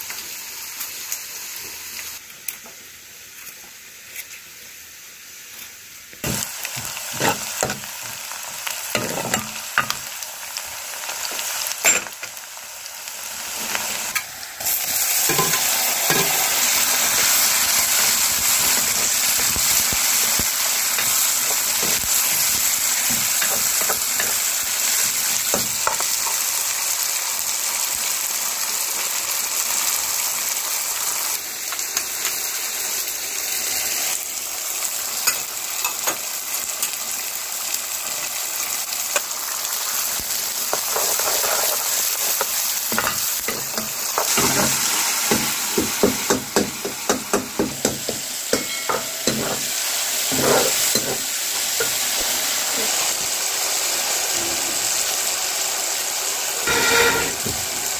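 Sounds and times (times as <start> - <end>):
vegetables sizzling in hot oil: 0.0 - 57.9
metal ladle scraping a pan: 50.3 - 51.2, 56.6 - 57.6.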